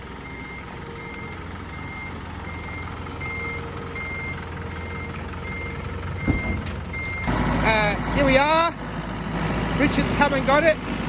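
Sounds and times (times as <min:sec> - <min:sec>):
truck reversing alarm beeping: 0:00.0 - 0:08.8
diesel engine running: 0:00.0 - 0:11.0.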